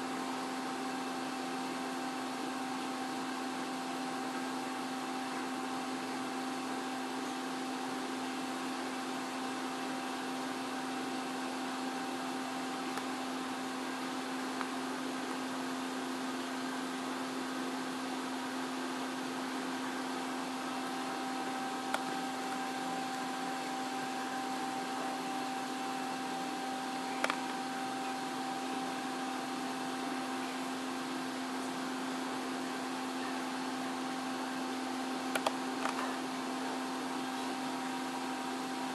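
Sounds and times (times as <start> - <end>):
mechanical hum: 0.0 - 38.9.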